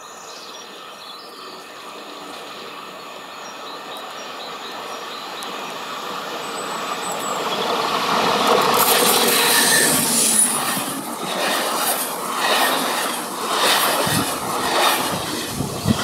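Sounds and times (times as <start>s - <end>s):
train running on rails: 0.0s - 16.0s
wheels screeching on curve: 6.4s - 16.0s.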